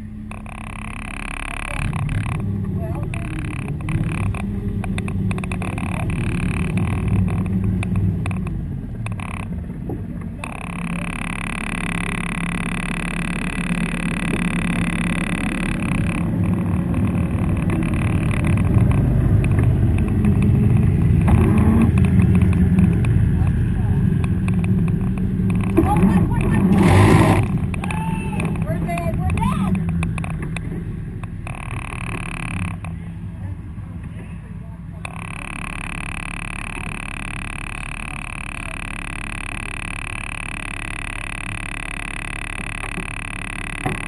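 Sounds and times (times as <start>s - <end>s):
steady high whine: 0.0s - 34.2s, 34.9s - 44.0s
toy tank engine running: 35.1s - 44.0s.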